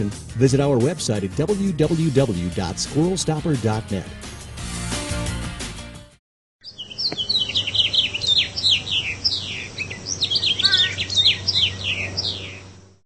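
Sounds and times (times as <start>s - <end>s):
songbirds chirping and singing: 6.6s - 12.9s.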